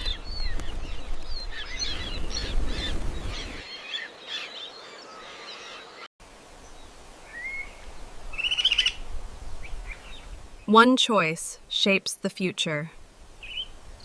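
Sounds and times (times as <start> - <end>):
birds chirping and calling: 0.0 - 6.0, 8.3 - 9.0, 13.4 - 13.8.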